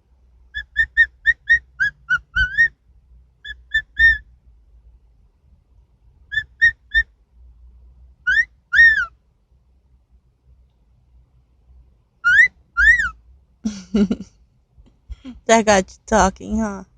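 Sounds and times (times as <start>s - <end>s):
pet bird whistling: 0.5s - 2.7s, 3.4s - 4.2s, 6.3s - 7.1s, 8.3s - 9.1s, 12.2s - 13.2s.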